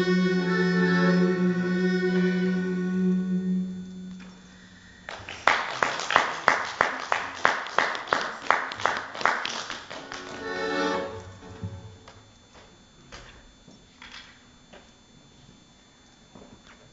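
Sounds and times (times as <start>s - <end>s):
accordion playing: 0.0s - 4.2s, 9.9s - 12.2s
rhythmic clapping: 5.1s - 13.3s.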